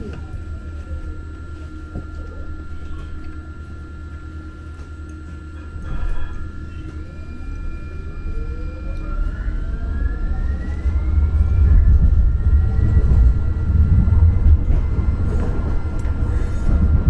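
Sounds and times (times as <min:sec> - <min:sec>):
traction motor whine: 0:00.0 - 0:17.0
wheels rumbling on track: 0:05.6 - 0:17.0.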